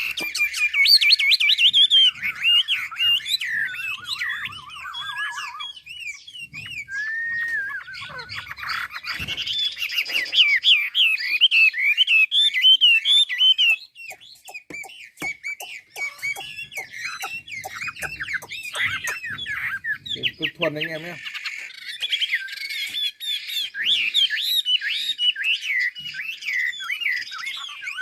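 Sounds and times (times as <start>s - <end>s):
bird singing whistled phrases: 0.0s - 28.0s
sharp bird clicking notes: 13.6s - 19.9s.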